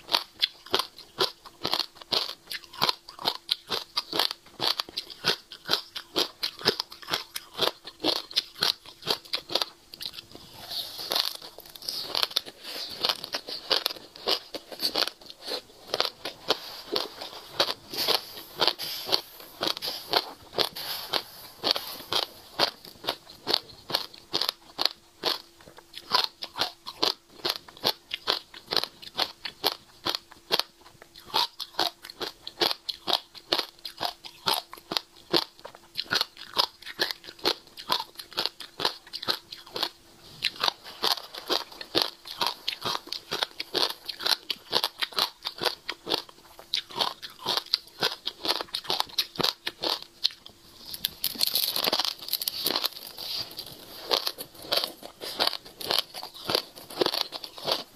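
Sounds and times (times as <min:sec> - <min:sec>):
crunchy chewing: 0:00.0 - 0:57.9
rustle of seeds: 0:17.9 - 0:20.2, 0:20.8 - 0:22.2.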